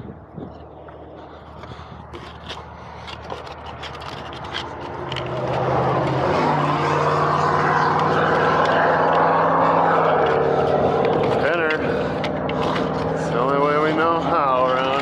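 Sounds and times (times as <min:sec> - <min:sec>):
clicks and scrapes: 0:01.2 - 0:15.0
diesel truck engine revving: 0:04.2 - 0:15.0.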